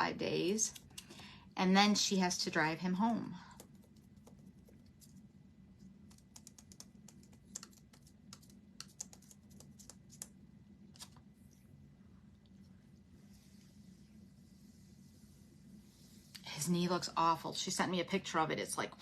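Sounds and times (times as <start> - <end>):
low steady hum: 0.0 - 19.0
typing on computer keyboard: 3.5 - 5.1, 6.0 - 10.3.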